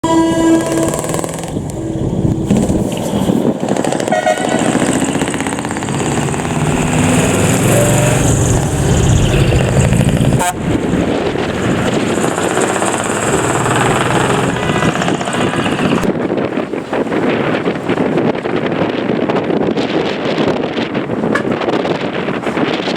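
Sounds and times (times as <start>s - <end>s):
short horn toot: 0.0s - 1.5s
diesel trucks pulling away: 4.7s - 16.1s.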